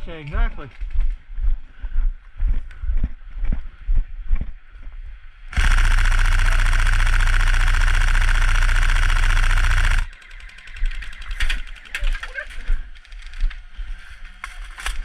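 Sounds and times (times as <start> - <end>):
airsoft gun full-auto burst: 5.5 - 12.0.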